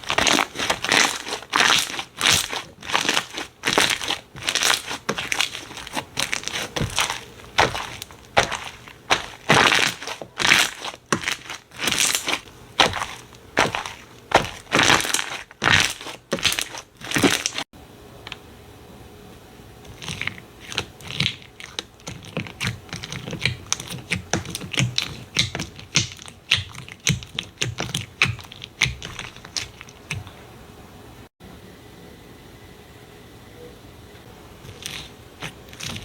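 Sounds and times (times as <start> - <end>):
slime crunchy squeezes: 0.0 - 17.7.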